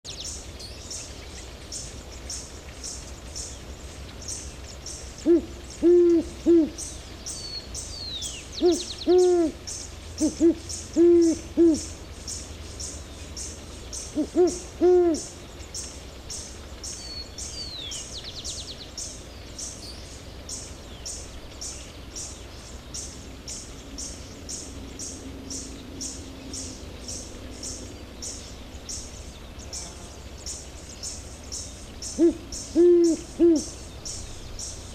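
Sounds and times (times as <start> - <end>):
owl hooting: 5.2 - 6.9, 8.6 - 9.6, 10.2 - 12.0, 14.1 - 15.4, 32.1 - 33.8.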